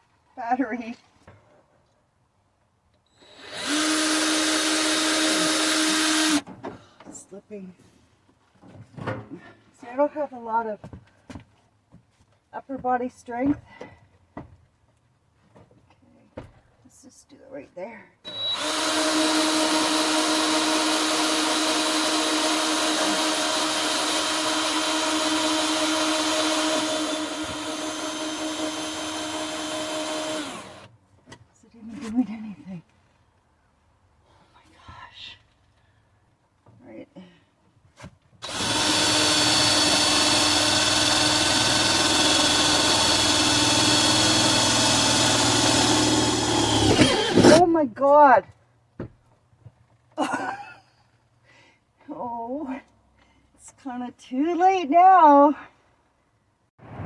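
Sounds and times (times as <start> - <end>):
cordless drill whining: 3.1 - 6.4, 18.3 - 30.9, 38.4 - 47.6.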